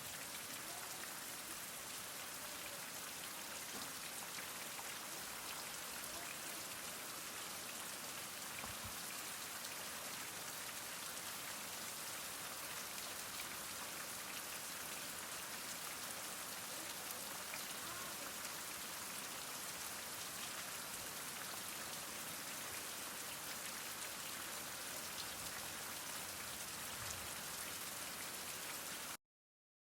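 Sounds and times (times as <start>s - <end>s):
heavy rain falling: 15.9s - 22.1s.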